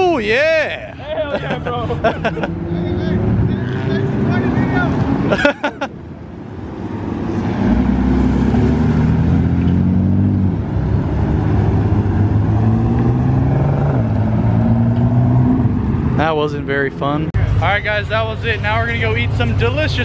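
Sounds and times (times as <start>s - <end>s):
car engine accelerating: 1.7s - 5.4s, 6.2s - 17.3s.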